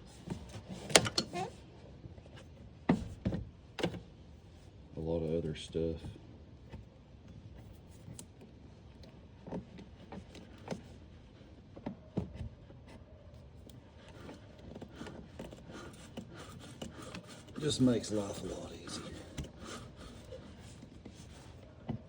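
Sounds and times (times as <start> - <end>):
hand tool clicking and scraping: 13.7 - 20.9.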